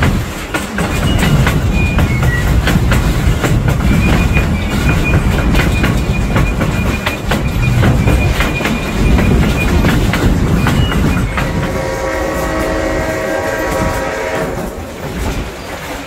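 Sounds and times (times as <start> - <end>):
low rumble of train cars: 0.0 - 16.0
wheels clicking over rail joints: 0.0 - 16.0.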